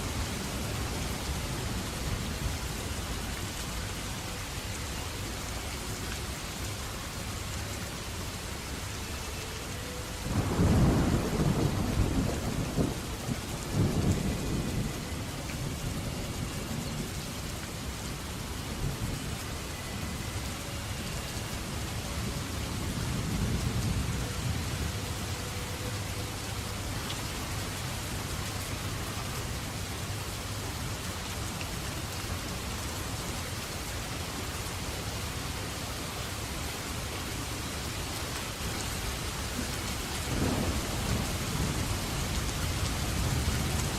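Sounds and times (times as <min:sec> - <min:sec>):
heavy rain: 0:00.0 - 0:43.9
thunder rumbling: 0:10.3 - 0:15.7, 0:40.2 - 0:43.9.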